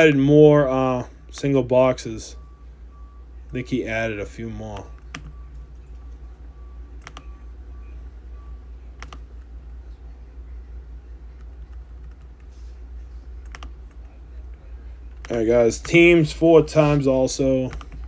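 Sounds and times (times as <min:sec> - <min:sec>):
steady low hum: 0:00.0 - 0:18.0
keyboard and mouse clicks: 0:07.0 - 0:07.3, 0:09.0 - 0:09.2, 0:13.4 - 0:14.0.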